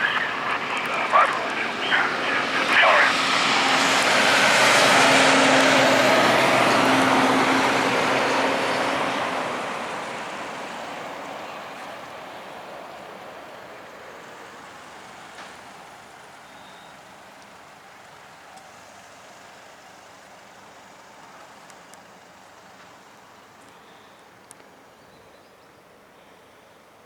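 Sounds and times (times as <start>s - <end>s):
truck passing: 0.0s - 16.4s.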